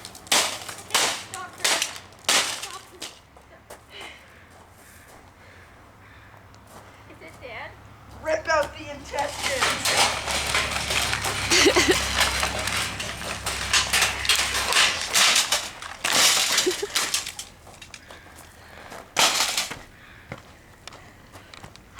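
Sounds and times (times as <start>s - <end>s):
coffee maker parts crunching: 0.0s - 3.3s, 8.9s - 20.0s.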